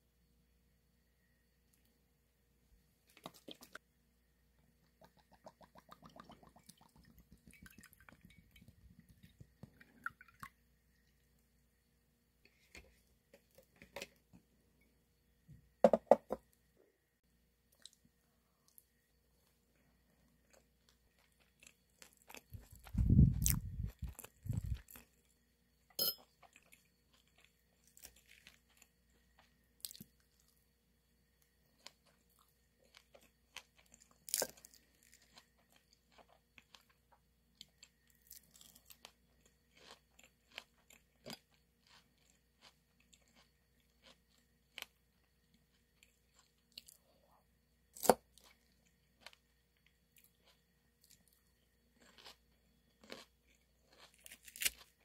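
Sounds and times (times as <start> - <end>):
crunchy chewing: 18.6 - 30.7, 31.4 - 47.2, 47.8 - 55.0.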